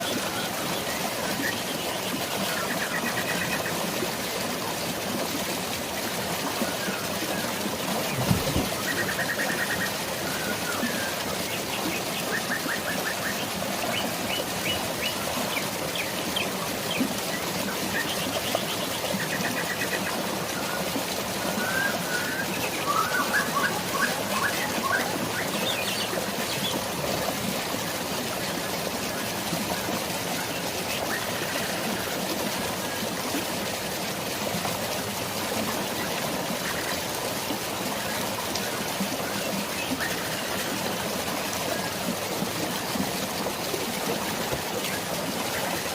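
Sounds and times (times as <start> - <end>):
flowing water: 0.0 - 45.9
rain: 0.0 - 45.9
forest birds chirping and trilling: 6.7 - 20.9, 21.5 - 26.9.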